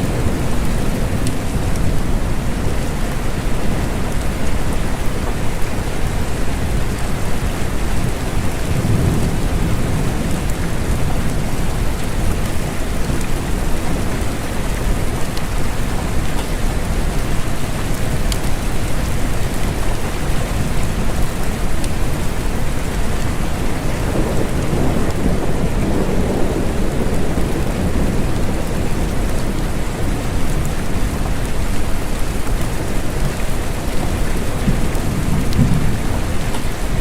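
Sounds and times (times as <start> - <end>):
steady rain: 0.0 - 37.0.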